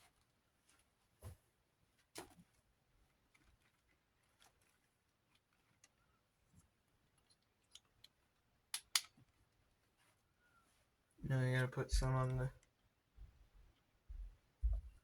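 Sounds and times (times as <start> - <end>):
clicks and taps of small motor parts: 7.2 - 9.2
sharp clicks: 8.8 - 9.1.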